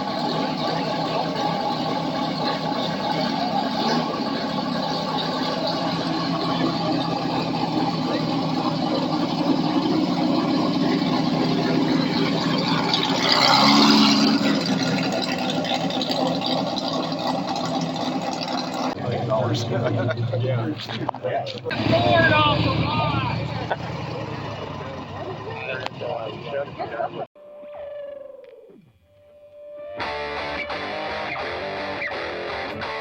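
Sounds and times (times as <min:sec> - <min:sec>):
car engines droning: 0:00.0 - 0:27.3.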